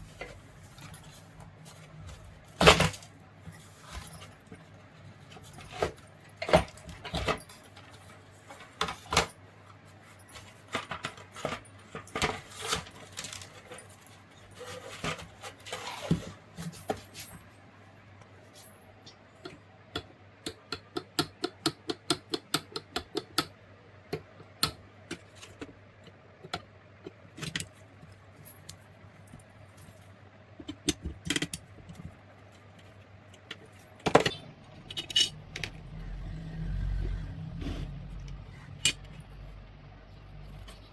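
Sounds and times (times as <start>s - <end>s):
metal tools clinking and knocking: 33.5s - 35.8s.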